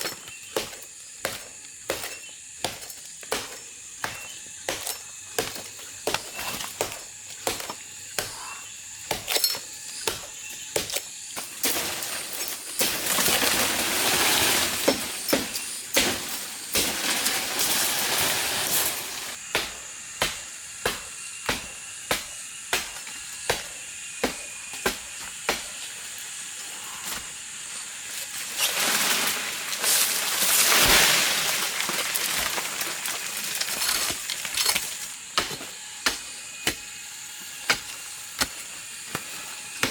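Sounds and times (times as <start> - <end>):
loud rustling hiss: 9.4 - 20.6, 25.5 - 39.9.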